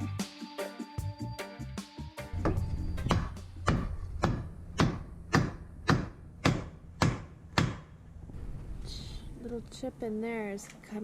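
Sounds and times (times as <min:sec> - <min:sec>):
hammer striking metal punch: 0:02.4 - 0:08.0.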